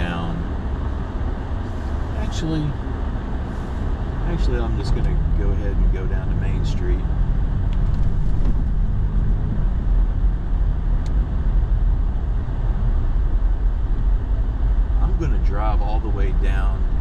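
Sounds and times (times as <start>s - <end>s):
road and tyre noise: 0.0s - 17.0s
truck engine hum: 0.0s - 17.0s.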